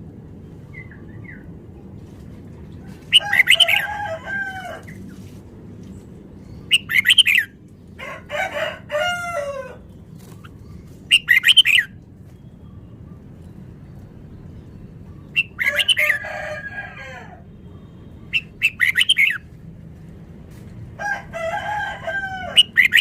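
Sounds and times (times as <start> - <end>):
bird whistling song: 6.5 - 7.6, 10.3 - 13.2, 15.1 - 16.2, 18.2 - 19.5.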